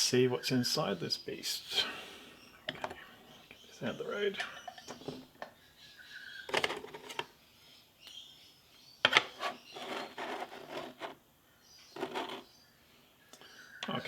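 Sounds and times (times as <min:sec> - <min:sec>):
metal rattling and scraping: 0:12.0 - 0:12.4.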